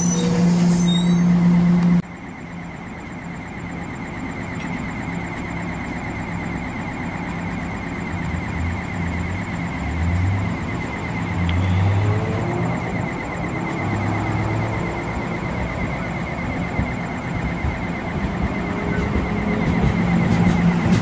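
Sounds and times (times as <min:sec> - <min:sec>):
high even whine: 0:00.0 - 0:21.0
train coaches rumbling: 0:14.2 - 0:21.0.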